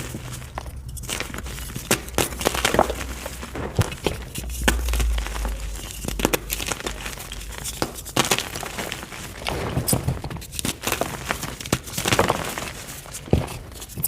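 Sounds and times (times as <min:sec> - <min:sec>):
low rumble: 0:00.0 - 0:08.8
chalk crumbling and crackling: 0:00.0 - 0:14.0.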